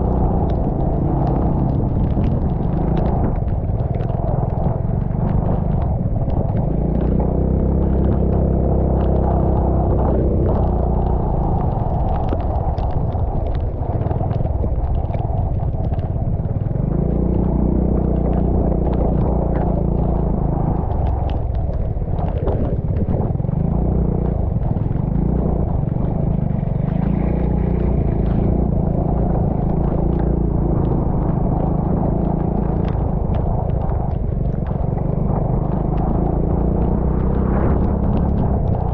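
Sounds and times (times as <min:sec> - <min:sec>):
vehicle engine running: 0:00.0 - 0:38.9
rushing noise: 0:08.9 - 0:38.9.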